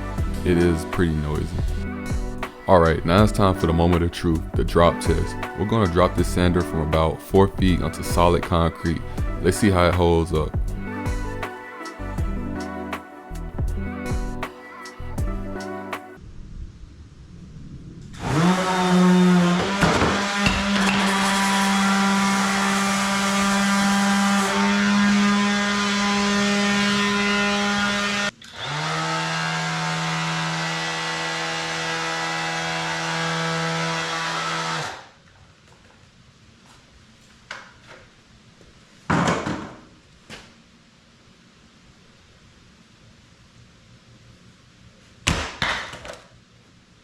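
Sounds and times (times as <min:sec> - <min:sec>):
orbital sander motor whine: 0:18.1 - 0:35.2.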